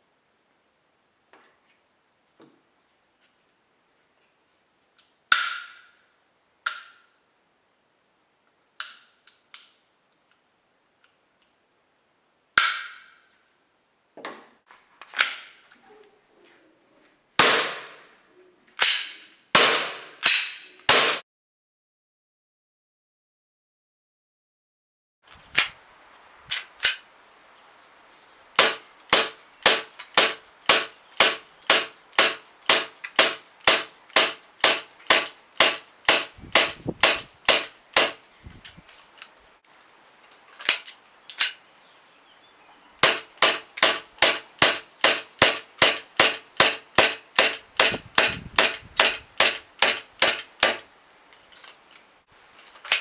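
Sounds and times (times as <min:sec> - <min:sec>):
airsoft pistol shots: 0:17.4 - 0:18.0, 0:18.8 - 0:21.2, 0:28.6 - 0:38.2, 0:43.0 - 0:50.9.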